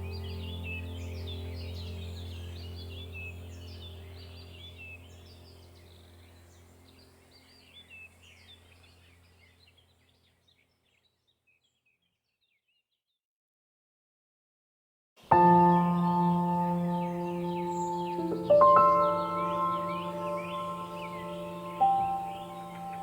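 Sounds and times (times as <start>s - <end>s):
steady low drone: 0.0s - 6.5s, 15.3s - 23.0s
bird chirps: 15.3s - 23.0s.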